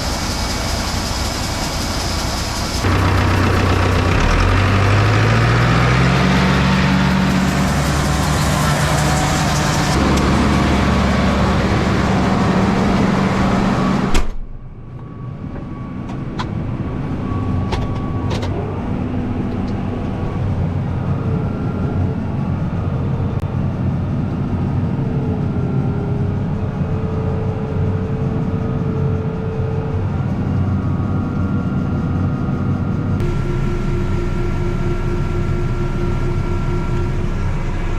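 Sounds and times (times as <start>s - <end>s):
farm machinery engine running: 0.0s - 14.2s, 33.2s - 37.9s
faint whining tones: 25.6s - 37.9s.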